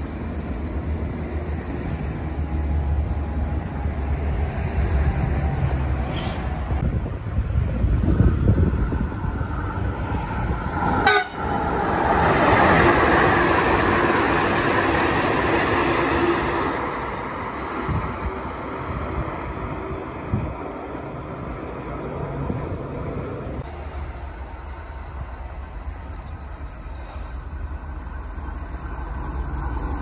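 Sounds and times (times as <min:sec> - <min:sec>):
train passing with wheel rush: 0:00.0 - 0:30.0
wind rumble on microphone: 0:01.8 - 0:12.9, 0:17.5 - 0:23.7
train horn: 0:11.0 - 0:11.5.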